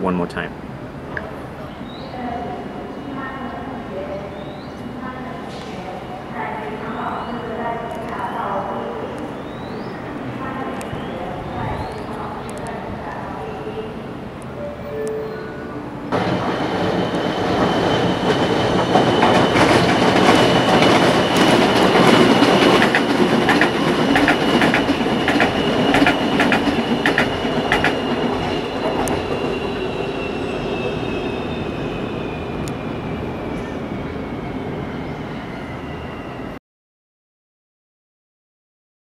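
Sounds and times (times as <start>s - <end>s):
light-rail train passing: 0.0s - 36.6s
sharp clicks of train: 5.5s - 5.8s, 16.1s - 29.7s.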